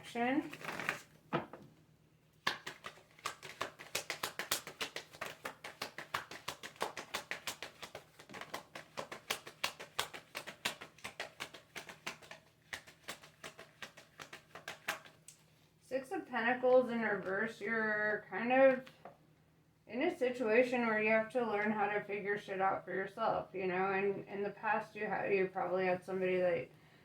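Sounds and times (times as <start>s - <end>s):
cards being shuffled: 0.4s - 1.5s, 2.4s - 15.6s.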